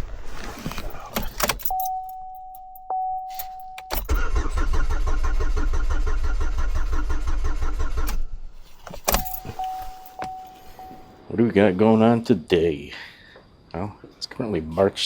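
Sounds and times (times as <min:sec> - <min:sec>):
single-tone dash chime: 0:01.6 - 0:04.1, 0:09.2 - 0:11.2
starter cranking engine: 0:03.9 - 0:08.4.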